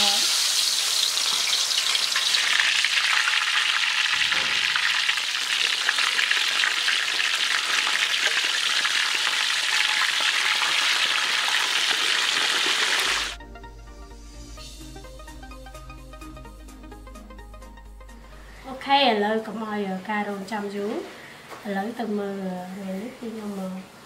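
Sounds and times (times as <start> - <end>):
chicken sizzling in hot oil: 0.0 - 13.4.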